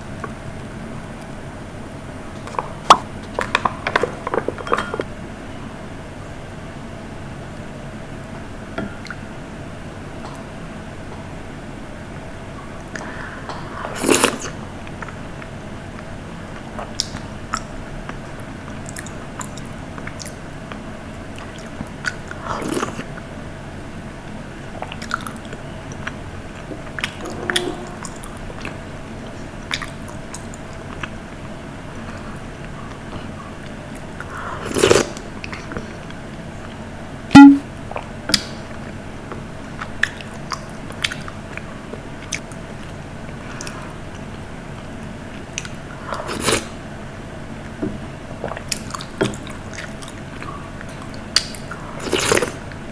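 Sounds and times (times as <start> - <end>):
crunchy eating: 13.0 - 16.1, 31.9 - 36.2, 41.0 - 46.8, 48.4 - 52.8
short pitched knock: 27.2 - 28.5, 37.4 - 37.6.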